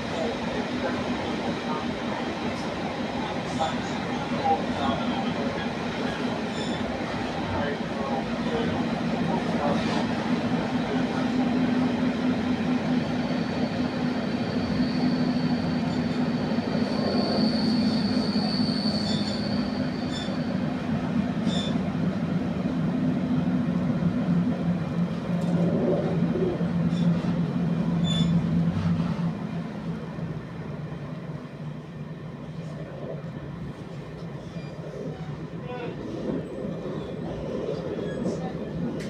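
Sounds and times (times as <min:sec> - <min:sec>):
train running on rails: 0:00.0 - 0:39.0
wheel squeal: 0:14.4 - 0:20.5, 0:21.4 - 0:21.8, 0:28.0 - 0:28.5.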